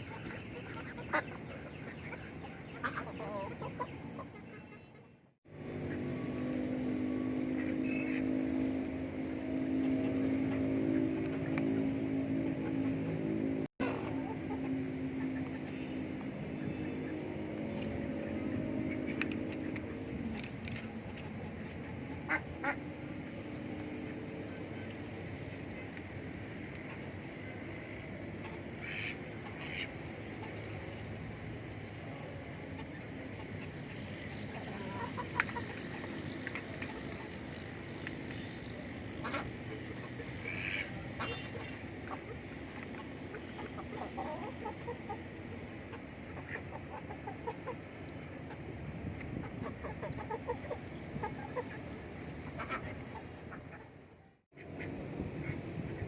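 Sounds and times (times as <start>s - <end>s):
ducks quacking: 0.0s - 6.1s, 7.4s - 8.7s, 21.1s - 22.9s, 28.3s - 30.8s, 32.7s - 35.8s, 39.2s - 45.3s, 45.9s - 47.8s, 49.3s - 54.0s
chickens clucking: 0.0s - 6.3s, 9.6s - 24.6s, 27.9s - 31.2s, 32.2s - 38.0s, 38.7s - 54.0s.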